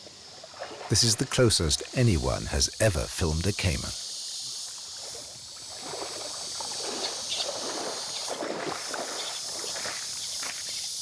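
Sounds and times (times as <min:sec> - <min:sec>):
river water sloshing and splashing: 0:05.0 - 0:10.6.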